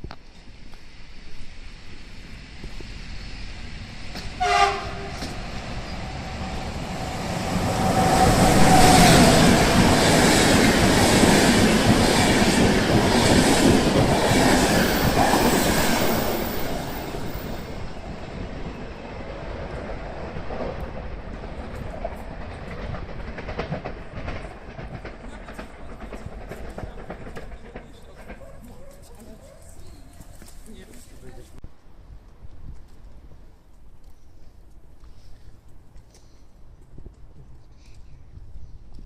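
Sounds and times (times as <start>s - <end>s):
train passing at speed: 0.2s - 31.6s
train two-tone horn: 4.4s - 5.5s.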